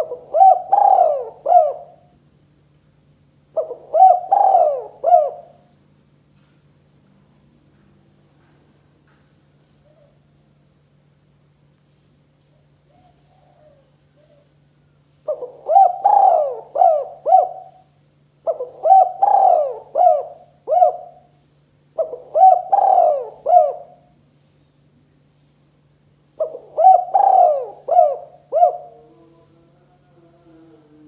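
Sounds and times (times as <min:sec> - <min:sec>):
dove cooing: 0:00.0 - 0:02.1, 0:03.6 - 0:05.7, 0:12.9 - 0:14.5, 0:15.2 - 0:21.3, 0:22.0 - 0:24.1, 0:26.4 - 0:31.0
steady low hum: 0:00.0 - 0:31.0.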